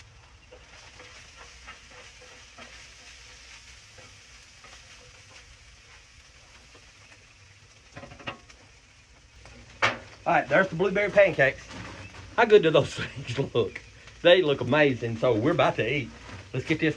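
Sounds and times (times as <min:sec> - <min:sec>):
food sizzling as it fries: 0:00.0 - 0:16.9
utensil clicks and scrapes: 0:00.5 - 0:07.2.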